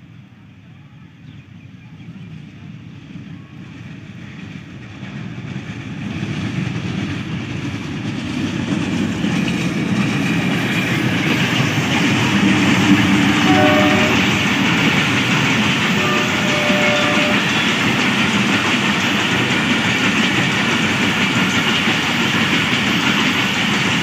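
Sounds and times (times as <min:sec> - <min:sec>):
diesel train approaching: 0:00.0 - 0:24.0.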